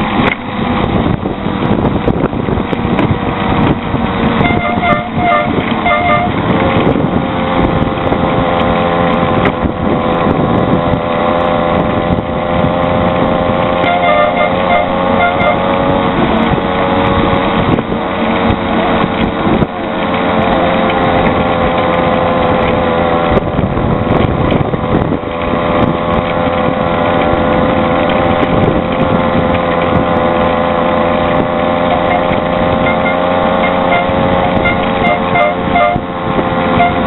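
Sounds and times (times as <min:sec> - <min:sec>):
small engine droning: 0:00.0 - 0:37.0.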